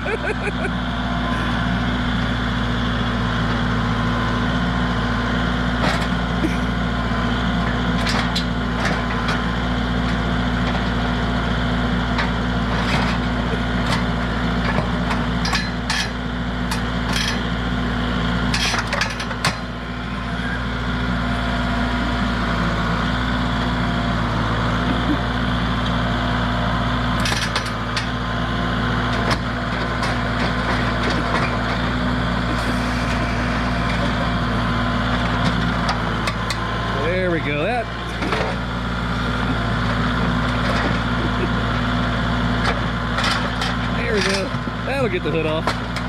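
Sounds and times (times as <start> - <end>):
steady machine hum: 0.0 - 3.1.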